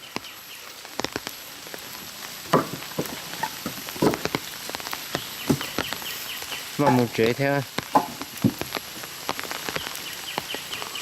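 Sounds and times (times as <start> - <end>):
rain hissing: 0.0 - 11.0
drips and taps: 6.8 - 10.7.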